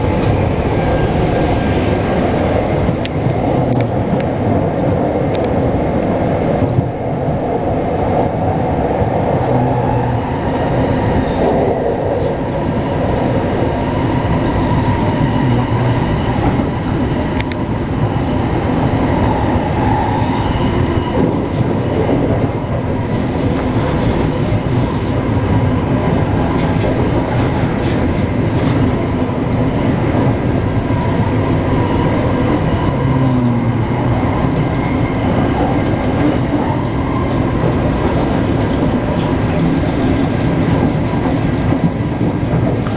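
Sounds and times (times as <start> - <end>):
train wheels rumbling on track: 0.0 - 42.9
high-pitched train squeal: 23.0 - 26.5.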